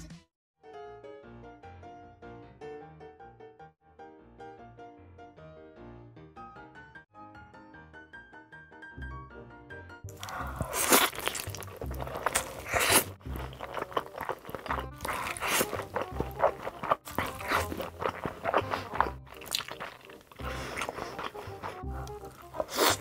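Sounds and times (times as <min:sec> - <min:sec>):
background music: 0:00.0 - 0:23.0
crunching and chewing: 0:10.1 - 0:23.0.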